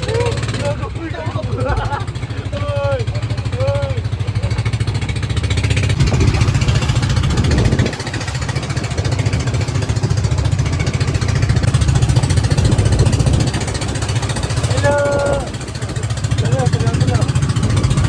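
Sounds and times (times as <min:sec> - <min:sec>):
boat engine chugging: 0:00.0 - 0:18.0.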